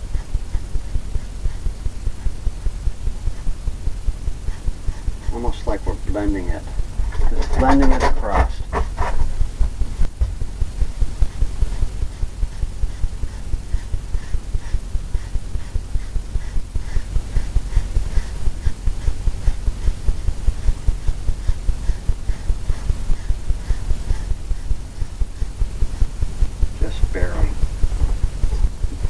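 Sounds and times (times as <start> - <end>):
brush strokes thumping canvas: 0.0 - 29.0.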